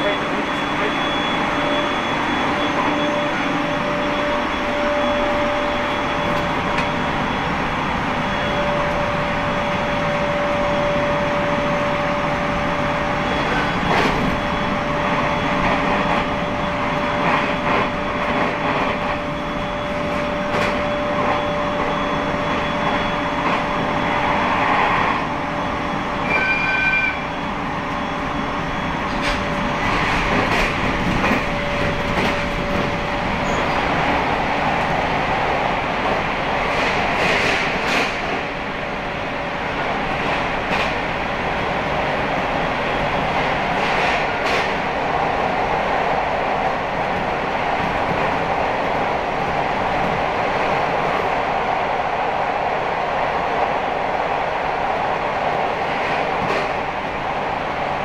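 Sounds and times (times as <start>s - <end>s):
brief high tone: 0.0s - 7.1s, 26.1s - 28.9s
train running noise: 0.0s - 58.0s.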